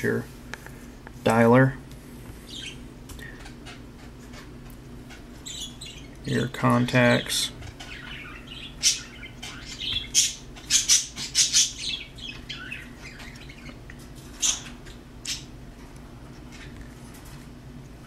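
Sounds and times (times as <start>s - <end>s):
birds calling: 2.4s - 15.6s.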